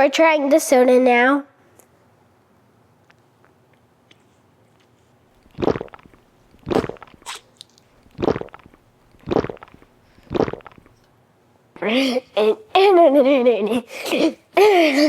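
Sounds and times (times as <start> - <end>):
gulps of fizzy soda: 5.4 - 11.0.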